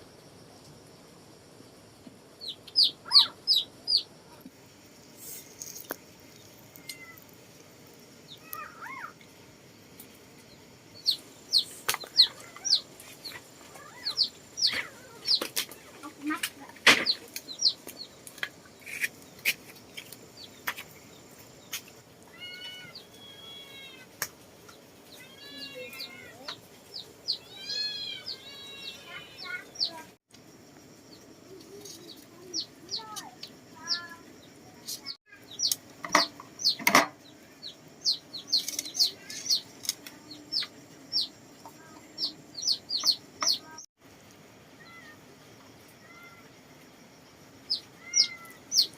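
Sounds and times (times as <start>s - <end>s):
chickens peeping and clucking: 2.4s - 4.6s, 5.2s - 23.4s, 24.2s - 30.1s, 31.1s - 43.9s.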